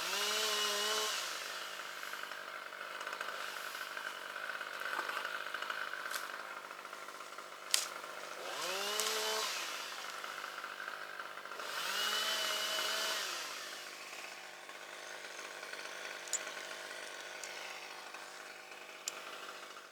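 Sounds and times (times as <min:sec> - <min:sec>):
chainsaw revving: 0:00.0 - 0:19.9.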